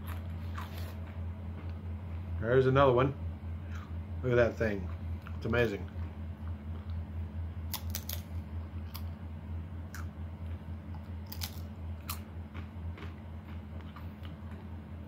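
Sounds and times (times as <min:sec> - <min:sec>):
low electrical hum: 0:00.0 - 0:15.0
tortilla chips crunching: 0:07.7 - 0:09.1, 0:10.9 - 0:14.6.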